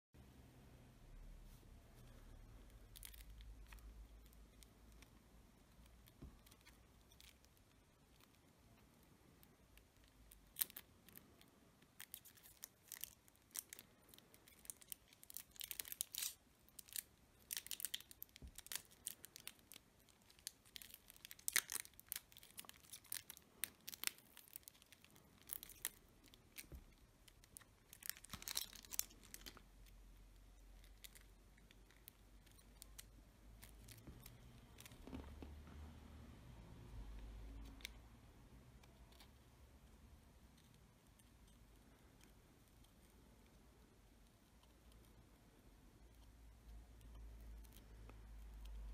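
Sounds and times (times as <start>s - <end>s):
cellophane wrapper crinkling: 2.7s - 9.1s, 9.8s - 35.6s.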